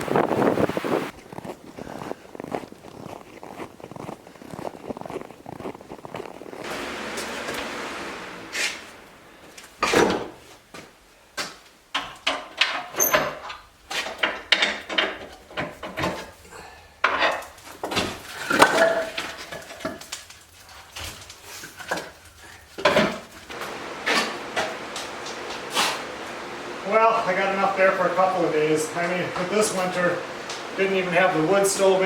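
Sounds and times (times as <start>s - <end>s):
firewood clunking and clattering: 11.4s - 25.8s.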